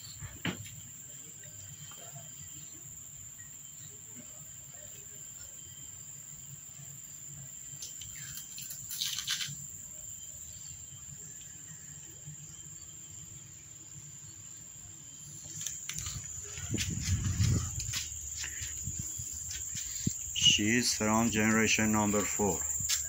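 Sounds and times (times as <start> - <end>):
high-pitched insect chirring: 4.6 - 23.0
short rustle: 15.3 - 20.3.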